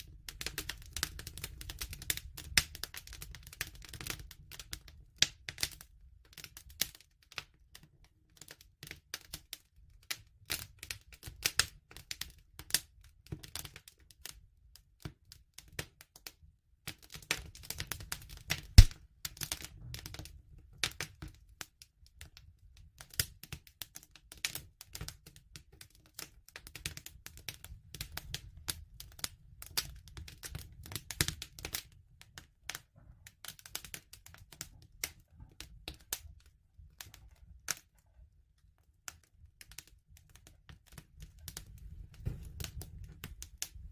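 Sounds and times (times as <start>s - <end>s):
burning wood popping and snapping: 17.0s - 21.6s, 23.1s - 37.9s, 39.6s - 43.9s
low fire rumble: 39.4s - 43.9s.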